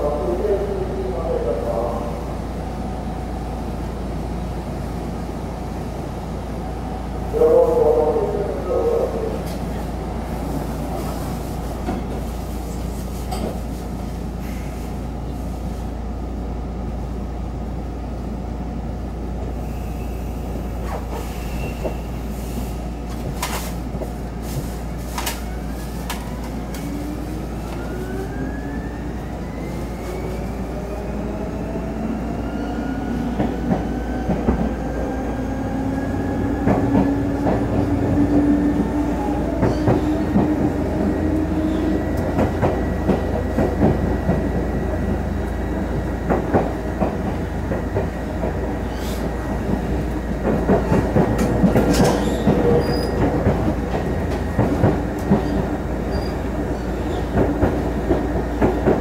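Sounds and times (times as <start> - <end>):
wheels rumbling on rail: 0.0 - 59.0
rail clicks: 33.2 - 59.0.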